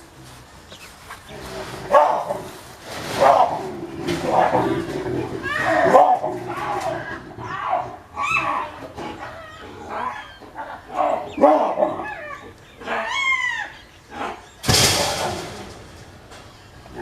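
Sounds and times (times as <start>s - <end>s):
baboons barking and screaming: 0.7s - 17.0s
loud sudden crash: 14.6s - 16.0s.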